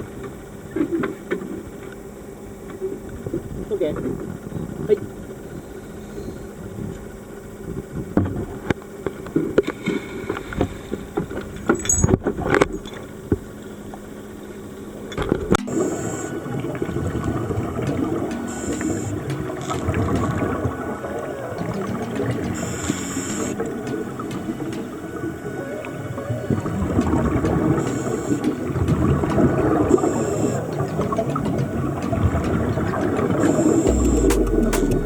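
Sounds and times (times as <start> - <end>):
muffled underwater bubbling: 15.6 - 35.0
knocks: 30.7 - 33.4.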